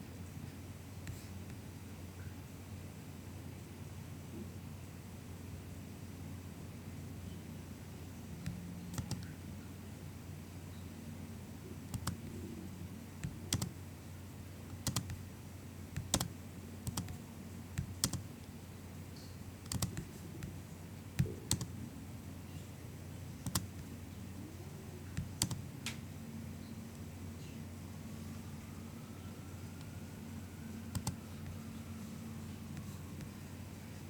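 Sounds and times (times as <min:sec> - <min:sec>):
low steady hum: 0:00.0 - 0:34.0
keyboard keys tapping: 0:08.4 - 0:09.3, 0:11.9 - 0:12.4, 0:13.2 - 0:13.8, 0:14.7 - 0:15.2, 0:15.9 - 0:17.2, 0:17.8 - 0:18.2, 0:19.6 - 0:20.6, 0:21.2 - 0:21.8, 0:23.4 - 0:23.9, 0:25.1 - 0:26.0, 0:30.9 - 0:31.6.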